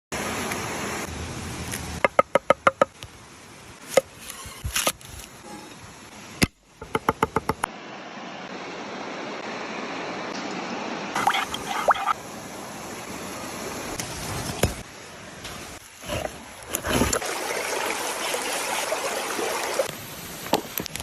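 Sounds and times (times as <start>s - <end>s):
steady background hiss: 19.8s - 21.0s.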